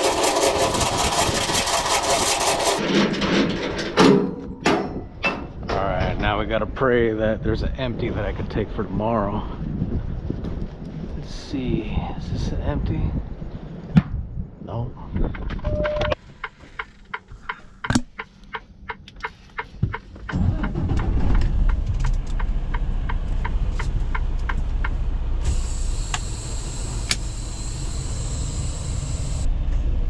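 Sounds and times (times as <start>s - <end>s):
low rumble: 20.2s - 30.0s.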